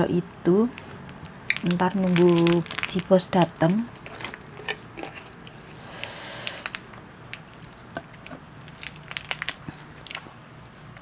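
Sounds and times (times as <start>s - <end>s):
chewing potato chips: 1.5s - 5.8s, 8.6s - 10.3s.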